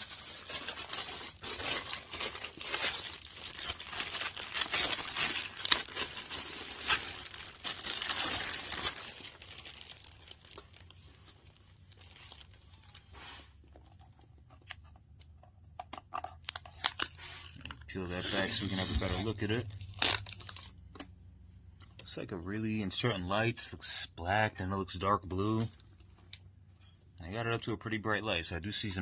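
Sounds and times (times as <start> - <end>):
plastic packaging crinkling: 0.0 - 14.9, 16.2 - 21.0.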